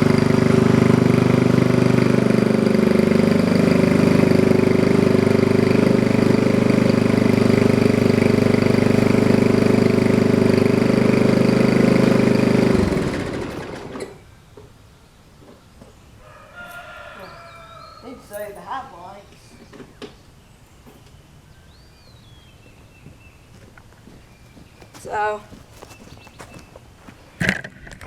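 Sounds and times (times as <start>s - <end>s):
engine winding down: 0.0s - 14.2s
small engine running: 0.0s - 14.2s.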